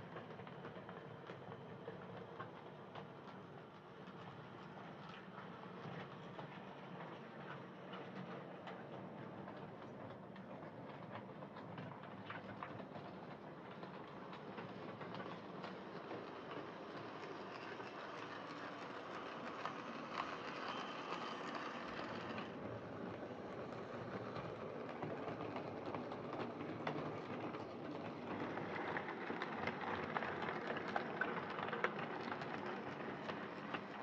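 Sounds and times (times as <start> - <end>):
wheels clicking over rail joints: 8.1 - 34.0
model train motor whirring: 15.5 - 22.6.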